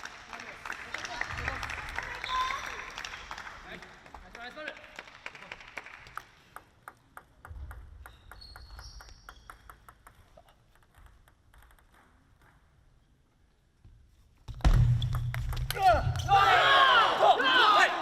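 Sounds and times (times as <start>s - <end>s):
table tennis ball clicking: 6.5s - 12.7s.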